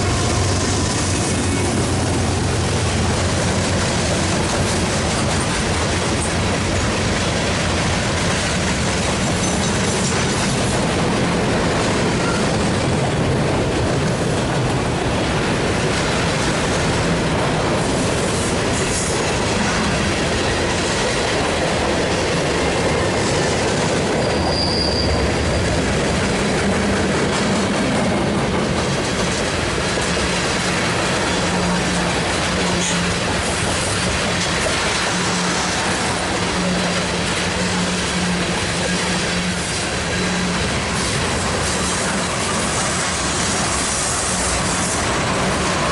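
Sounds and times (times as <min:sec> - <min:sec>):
freight train wheels rumbling: 0:00.0 - 0:45.9
high wheel squeal: 0:24.1 - 0:25.8.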